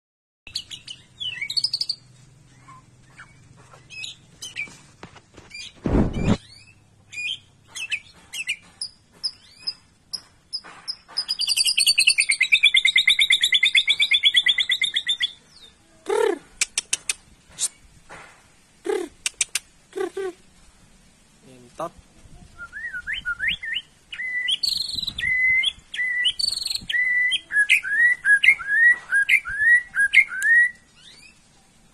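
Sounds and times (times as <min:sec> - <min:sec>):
bird singing chirps and whistles: 0:00.5 - 0:04.8, 0:05.5 - 0:15.7, 0:22.5 - 0:31.4
loud thump: 0:05.8 - 0:06.4.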